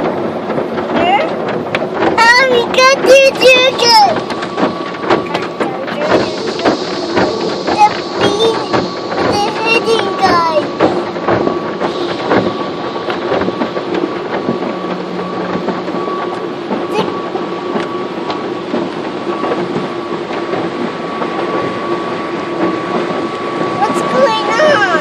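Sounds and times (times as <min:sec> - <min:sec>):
machinery hum: 0:00.0 - 0:25.0
car wash brushes scrubbing: 0:02.0 - 0:14.9, 0:23.4 - 0:25.0.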